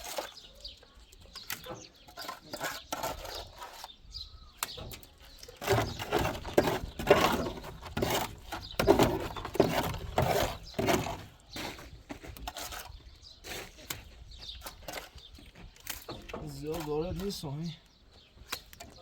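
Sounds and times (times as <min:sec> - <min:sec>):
trowel scraping wet plaster: 0:00.0 - 0:14.0.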